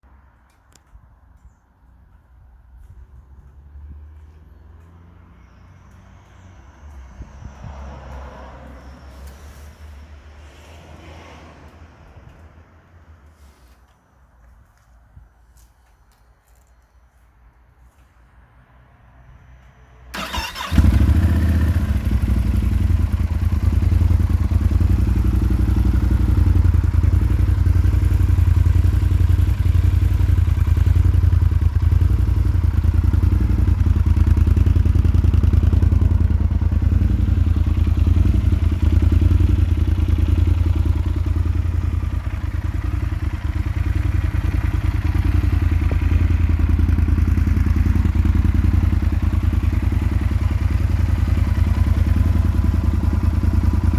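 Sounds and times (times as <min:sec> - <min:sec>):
motorcycle engine idling: 0:20.2 - 0:53.9.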